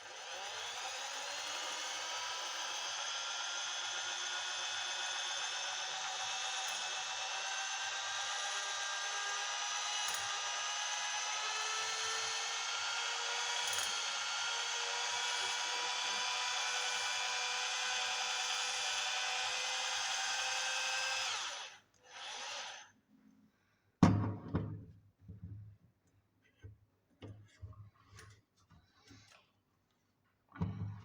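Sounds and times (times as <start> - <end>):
electric drill whining: 0.0 - 22.9.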